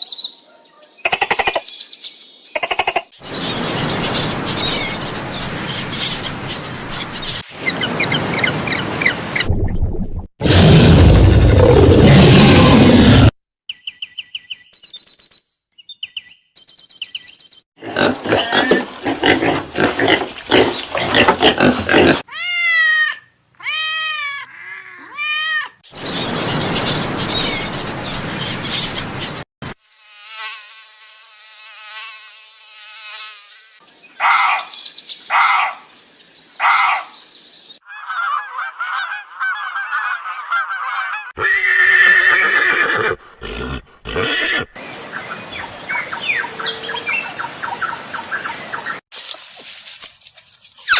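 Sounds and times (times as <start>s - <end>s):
harsh animal calls: 17.8s - 22.5s, 37.9s - 44.8s
animal squealing calls: 37.9s - 44.8s.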